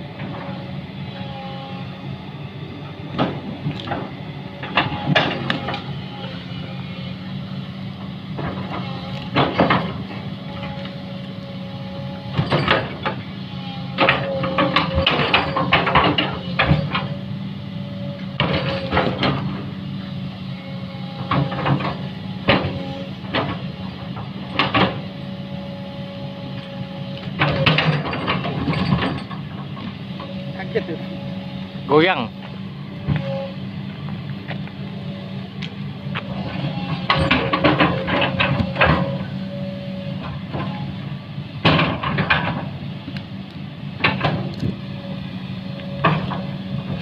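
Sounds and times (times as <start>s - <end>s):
engine running: 0.0s - 47.0s
metal clanking and knocking: 3.1s - 5.9s, 8.4s - 10.1s, 12.3s - 13.2s, 13.9s - 17.2s, 18.4s - 19.6s, 21.2s - 25.1s, 27.2s - 30.4s, 36.2s - 39.3s, 41.6s - 42.8s.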